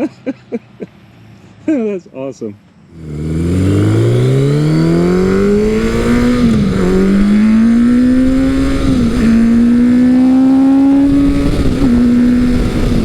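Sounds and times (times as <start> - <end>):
motorcycle engine accelerating: 2.9 - 13.0.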